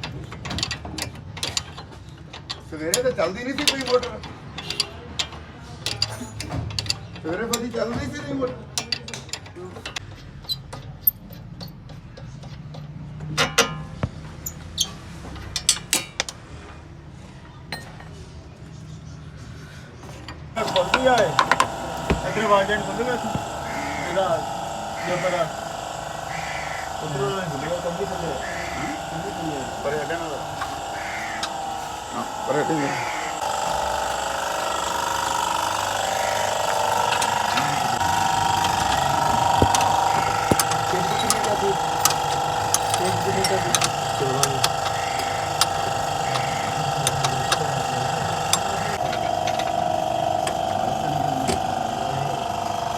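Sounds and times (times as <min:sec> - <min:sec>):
tools clanking on metal: 0:00.0 - 0:16.4, 0:37.0 - 0:49.8
steady low hum: 0:19.8 - 0:52.9.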